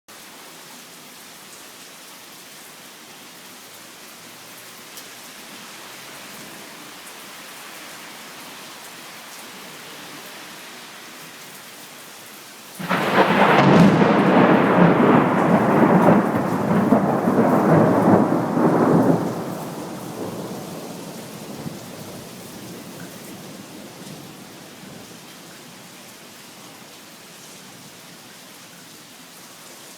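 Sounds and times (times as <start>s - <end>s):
steady rain falling: 0.1s - 29.9s
thunderclap rumbling: 12.8s - 24.4s.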